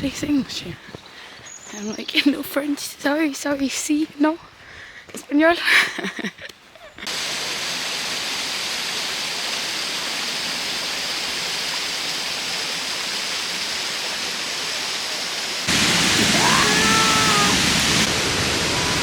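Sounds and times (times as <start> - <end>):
waterfall roaring: 7.1 - 19.0.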